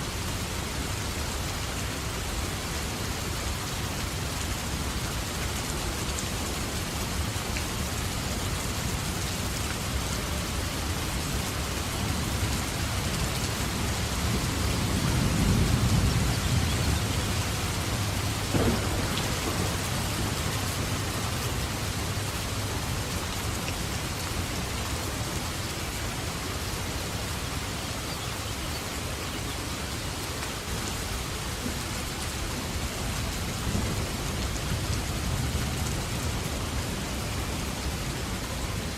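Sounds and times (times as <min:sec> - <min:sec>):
steady rain falling: 0:00.0 - 0:38.9
low rumble of thunder: 0:13.7 - 0:23.0
sharp thunder crack: 0:18.4 - 0:21.4.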